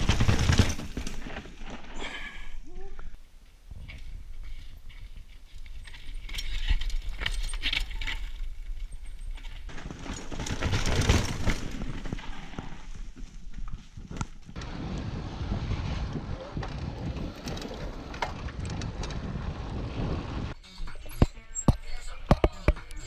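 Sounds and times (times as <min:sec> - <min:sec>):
tyres crunching on loose ground: 0:00.0 - 0:02.0
bike rattling: 0:00.0 - 0:02.5, 0:03.8 - 0:23.0.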